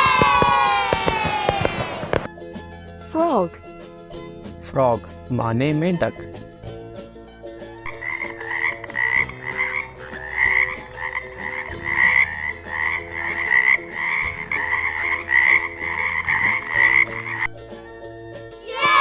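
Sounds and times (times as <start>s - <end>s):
frog croaking: 7.9s - 17.6s.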